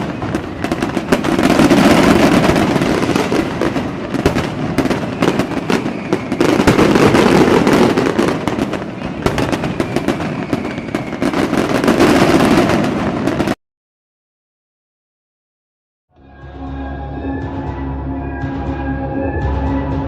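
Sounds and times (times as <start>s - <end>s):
continuous firework crackling: 0.0s - 13.6s
firework cracks and pops: 0.0s - 13.6s
faint falling whistle: 5.1s - 7.4s, 9.3s - 11.5s.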